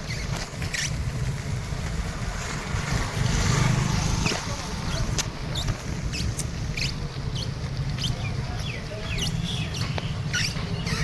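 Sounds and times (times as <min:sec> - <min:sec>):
bicycle rumbling over rough road: 0:00.0 - 0:11.0
high squeaky chirps: 0:09.2 - 0:11.0.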